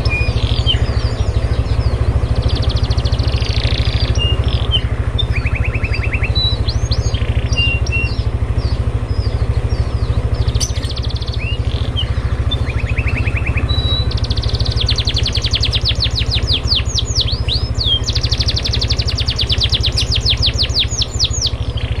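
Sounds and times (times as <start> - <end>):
songbird singing: 0.0 - 22.0
steady low hum: 0.0 - 22.0.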